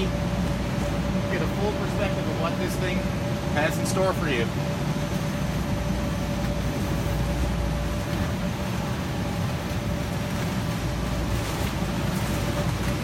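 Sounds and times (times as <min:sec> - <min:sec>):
blower fan droning hum: 0:00.0 - 0:13.0.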